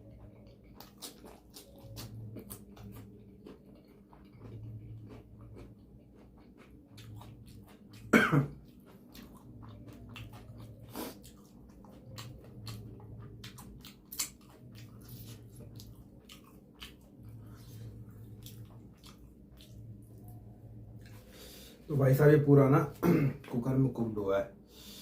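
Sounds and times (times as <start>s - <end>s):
chewing and wet mouth clicks: 0.1s - 17.6s, 18.2s - 20.4s
loud cough: 8.1s - 8.6s, 23.0s - 23.4s.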